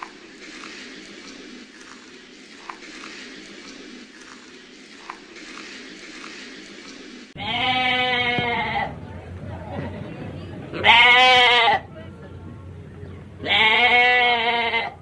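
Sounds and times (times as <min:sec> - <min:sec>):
goat or sheep bleating: 0:07.4 - 0:08.9, 0:13.4 - 0:15.0.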